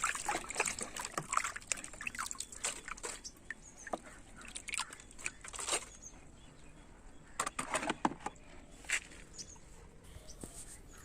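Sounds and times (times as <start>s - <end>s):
water splashing on plastic toy: 0.0s - 5.9s.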